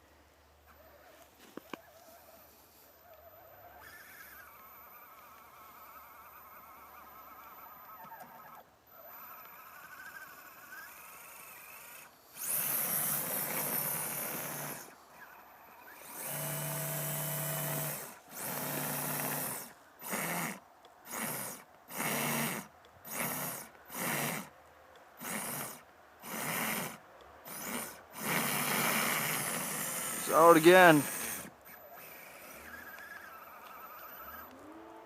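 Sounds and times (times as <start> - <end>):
electric motor whining: 1.6 - 24.5, 25.2 - 35.0.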